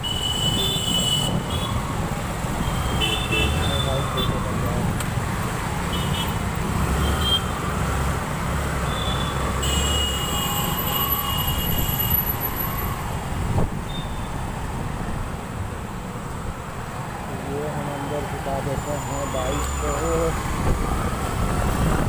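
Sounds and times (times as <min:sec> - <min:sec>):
traffic noise: 0:00.0 - 0:22.0.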